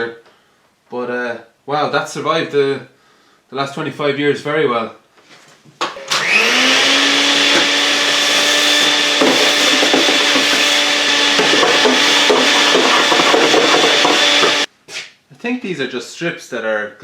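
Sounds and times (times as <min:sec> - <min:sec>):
vacuum cleaner running: 0:05.9 - 0:14.7.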